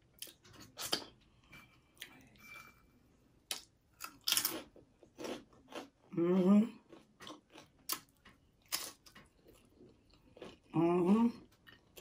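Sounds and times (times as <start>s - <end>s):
crunchy chewing: 4.0s - 6.1s, 6.8s - 10.8s.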